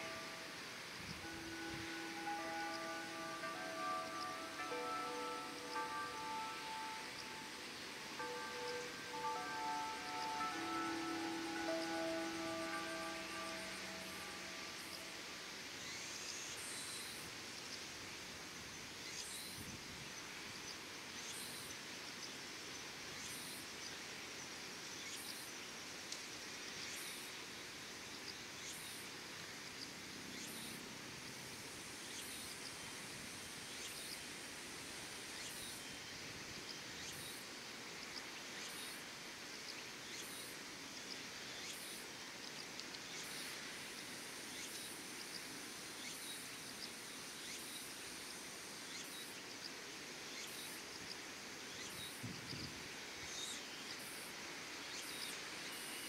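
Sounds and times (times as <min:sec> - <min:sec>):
insects chirring: 0:00.0 - 0:17.2.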